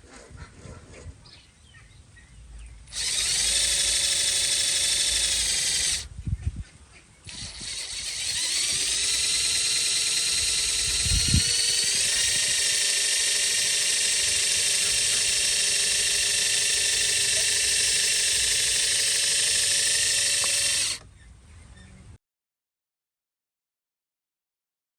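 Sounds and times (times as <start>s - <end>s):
small electric motor whining: 2.8s - 6.1s, 7.3s - 21.1s.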